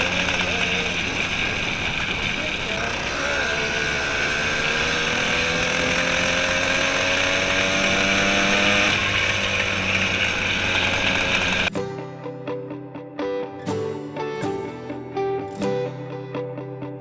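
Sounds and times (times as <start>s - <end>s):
small gas engine running: 0.0s - 11.7s.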